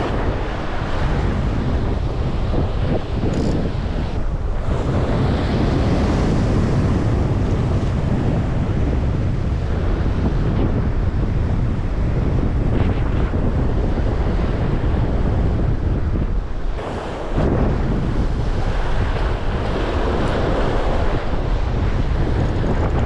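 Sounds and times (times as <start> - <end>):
surf washing on shore: 0.0 - 23.0
wind buffeting microphone: 0.0 - 23.0.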